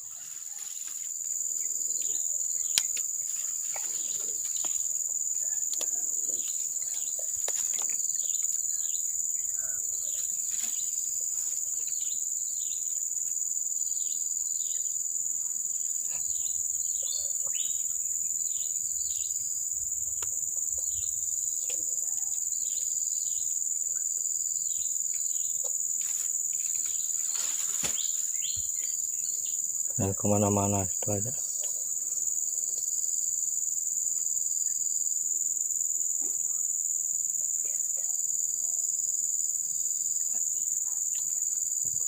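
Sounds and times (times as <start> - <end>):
high-pitched insect chorus: 0.0 - 42.0
bird chirps: 16.1 - 19.4, 28.0 - 30.1.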